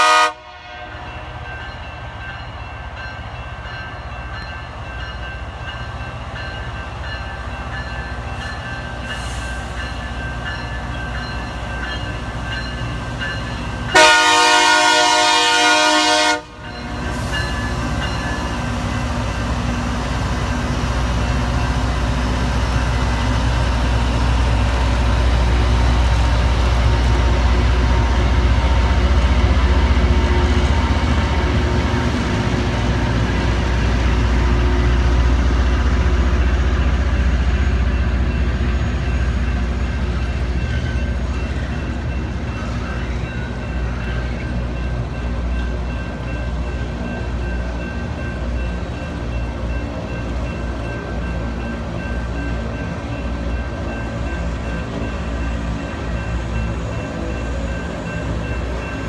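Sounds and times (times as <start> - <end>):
train horn blast: 0.0 - 1.2, 13.9 - 16.6
rail grinder train passing: 0.0 - 59.0.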